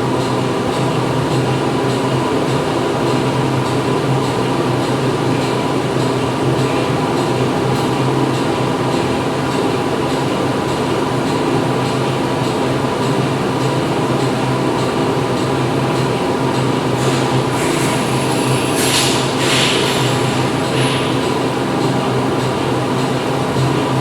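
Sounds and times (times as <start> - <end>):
factory machinery drone: 0.0 - 24.0
rushes of hiss: 17.1 - 21.2.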